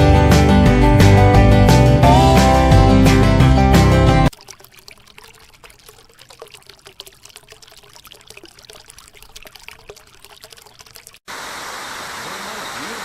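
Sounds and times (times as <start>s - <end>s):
water trickling and splashing: 4.3s - 13.0s.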